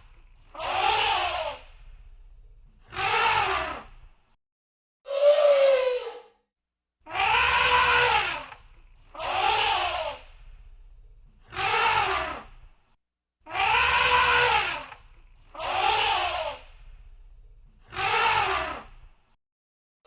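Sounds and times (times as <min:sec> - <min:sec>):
low rumble: 0:01.6 - 0:02.8, 0:10.3 - 0:11.4, 0:16.7 - 0:17.8
elephant trumpeting: 0:07.1 - 0:08.6, 0:13.5 - 0:15.0.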